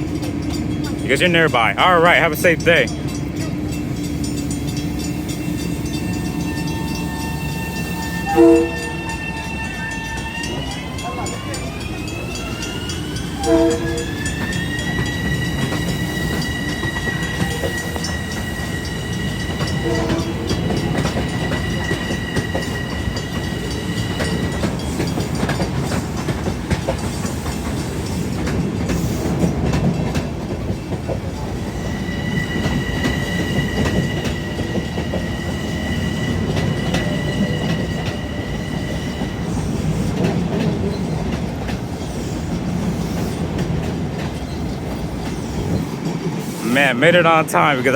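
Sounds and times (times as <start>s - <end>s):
train wheels clattering over rail joints: 12.4s - 46.6s.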